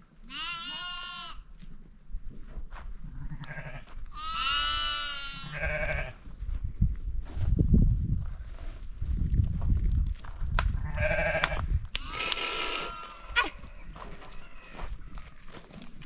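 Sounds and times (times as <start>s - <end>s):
goats bleating: 0.3s - 1.4s, 3.3s - 6.2s, 10.8s - 15.0s.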